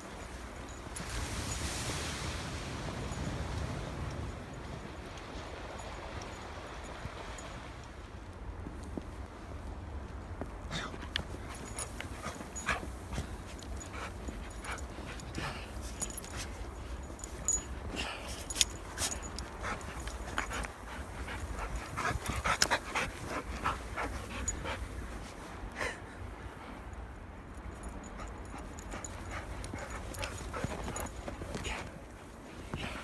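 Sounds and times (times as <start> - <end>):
dogs panting: 10.7 - 33.0.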